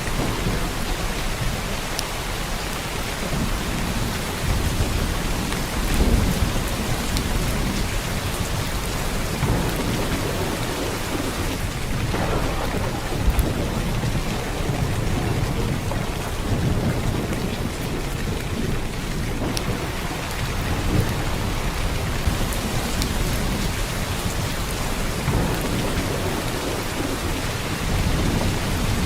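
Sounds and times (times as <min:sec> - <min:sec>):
heavy rain downpour: 0:00.0 - 0:29.0.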